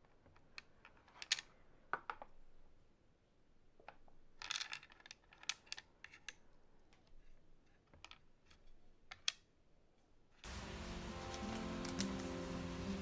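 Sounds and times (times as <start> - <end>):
background music: 10.5 - 13.0
light clicks and taps: 10.5 - 13.0.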